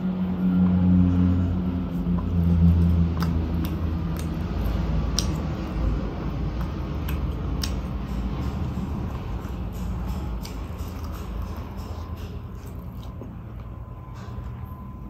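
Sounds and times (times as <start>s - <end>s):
person chewing chicken: 1.8s - 14.6s
sharp wet mouth clicks: 2.8s - 8.3s.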